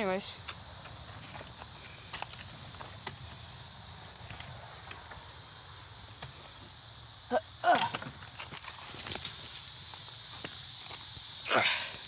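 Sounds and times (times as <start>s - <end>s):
insect chorus: 0.0s - 12.0s
creaking crunch: 0.5s - 11.8s
rustling through brush: 0.9s - 5.4s, 7.8s - 11.2s.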